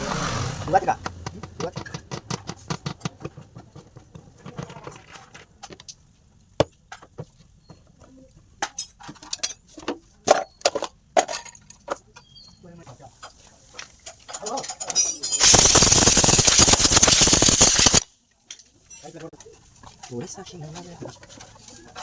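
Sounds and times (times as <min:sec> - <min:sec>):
metallic clinks of tools: 0:13.1 - 0:16.1.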